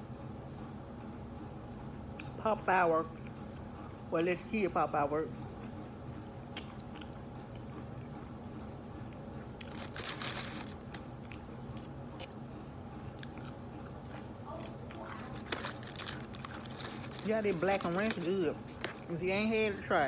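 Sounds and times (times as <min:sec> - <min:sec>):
crunchy chewing of fried food: 0:03.2 - 0:04.6, 0:05.4 - 0:19.2.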